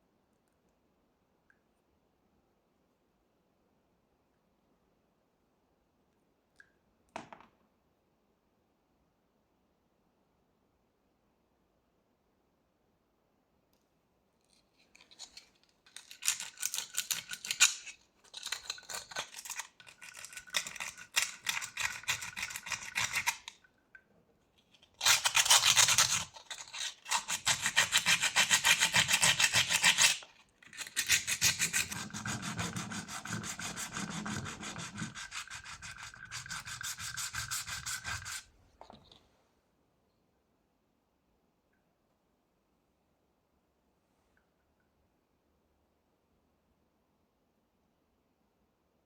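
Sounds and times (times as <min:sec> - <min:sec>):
rubbing on a hard surface: 0:25.0 - 0:38.5.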